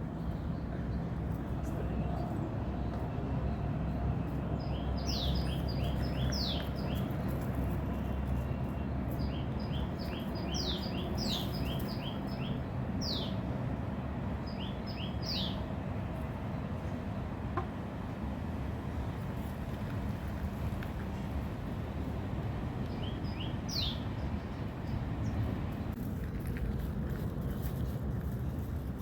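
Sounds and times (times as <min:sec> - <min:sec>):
bird chirping: 0:04.6 - 0:07.1, 0:08.4 - 0:13.4, 0:14.4 - 0:15.6, 0:22.9 - 0:25.5.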